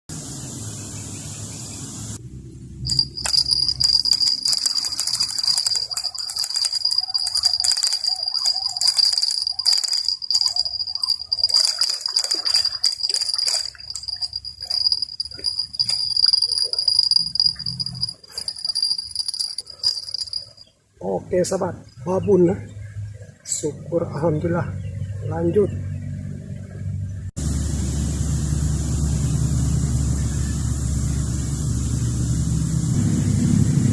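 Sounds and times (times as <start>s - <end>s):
high-pitched insect drone: 2.9s - 20.4s
irregular clicks and rattles: 2.9s - 20.7s.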